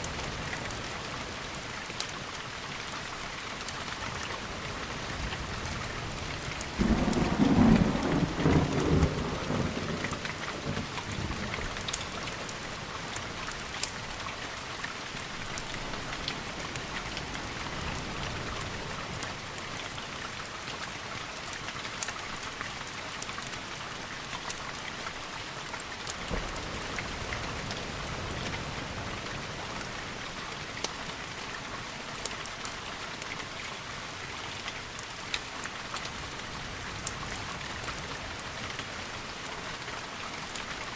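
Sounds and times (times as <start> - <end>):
sharp ticks of rain: 0.0 - 40.9
steady rain: 0.0 - 40.9
thunder clap rumbling: 6.8 - 11.5.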